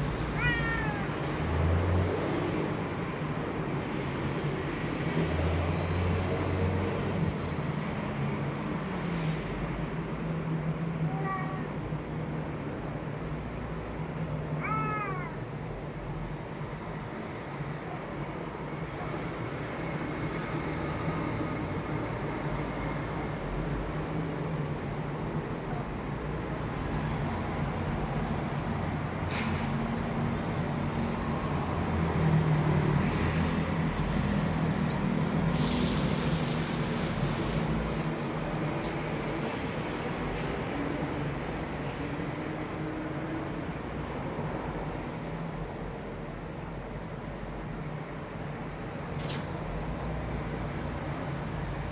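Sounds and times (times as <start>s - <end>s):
cat meowing: 0.2s - 1.2s, 11.1s - 11.8s, 14.6s - 15.6s.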